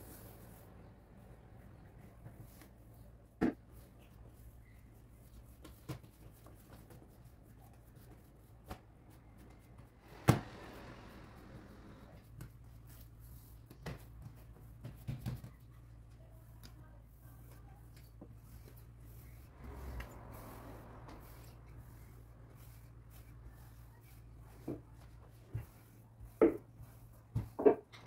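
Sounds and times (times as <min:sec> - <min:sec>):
kitchen taps and knocks: 0:27.4 - 0:28.0.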